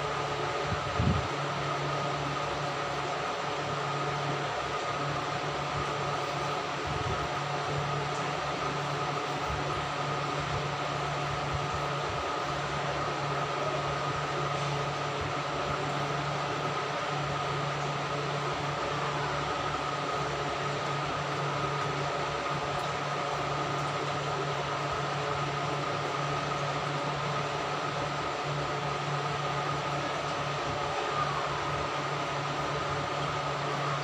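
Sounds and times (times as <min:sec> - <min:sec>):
machine hum with hiss and whine: 0:00.0 - 0:34.0.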